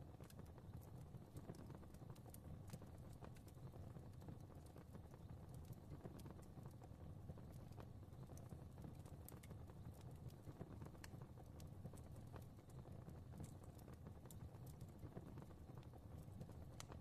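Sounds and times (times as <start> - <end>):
low rumble of flames: 0.0 - 17.0
wood fire crackling: 0.0 - 17.0.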